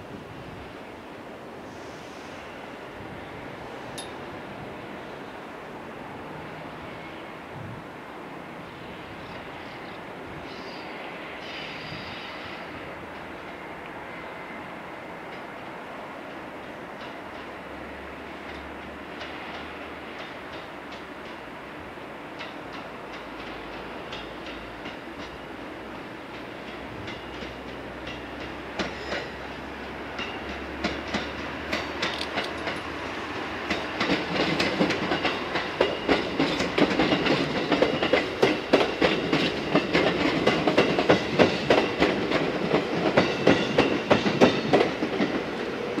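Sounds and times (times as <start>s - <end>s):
electric train passing: 0.0s - 46.0s
wheels clacking over rail joints: 22.4s - 46.0s.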